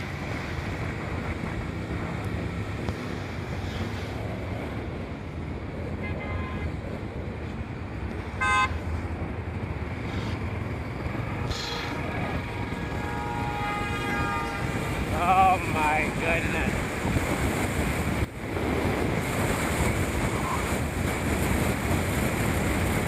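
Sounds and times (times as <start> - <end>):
motorcycle engine and wind rumble: 0.0 - 23.0
vehicle horn toot: 6.0 - 6.7, 8.4 - 8.8, 11.4 - 14.8.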